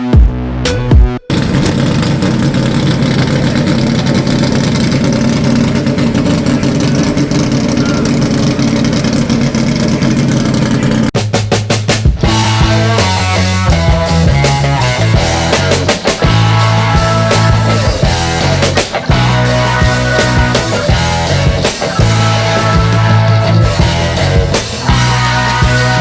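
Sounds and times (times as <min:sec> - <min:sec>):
music with a beat: 0:00.0 - 0:01.3, 0:11.2 - 0:26.0
car engine running: 0:01.3 - 0:11.2, 0:12.3 - 0:26.0.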